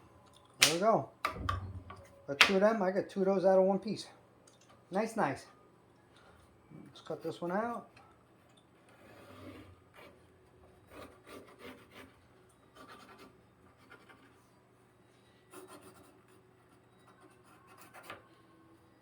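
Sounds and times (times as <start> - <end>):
pencil scratching on wood: 9.0 - 10.2, 10.9 - 14.4, 15.5 - 18.2.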